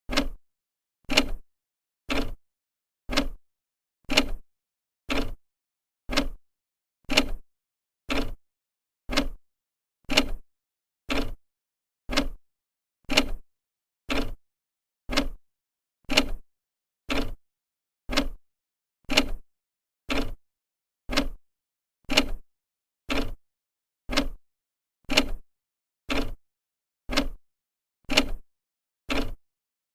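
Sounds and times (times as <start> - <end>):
clock ticking: 0.1 - 0.4, 2.1 - 2.4, 3.1 - 3.4, 5.1 - 5.4, 6.1 - 6.4, 8.1 - 8.4, 9.1 - 9.4, 11.1 - 11.4, 12.1 - 12.4, 14.1 - 14.4, 15.1 - 15.4, 17.1 - 17.4, 18.1 - 18.4, 21.1 - 21.4, 23.1 - 23.4, 24.1 - 24.4, 26.1 - 26.4, 27.1 - 27.4, 29.1 - 29.4.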